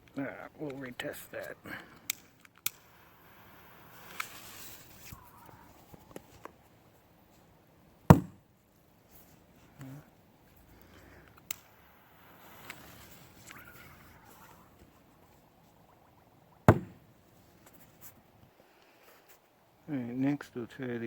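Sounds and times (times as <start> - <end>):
small clicks: 2.0 - 3.0.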